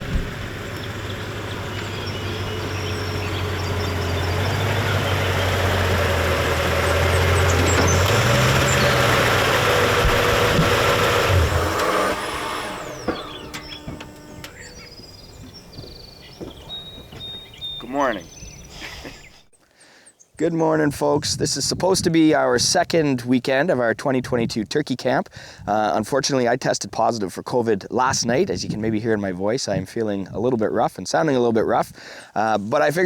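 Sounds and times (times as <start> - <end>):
vehicle engine running: 0.0 - 18.4.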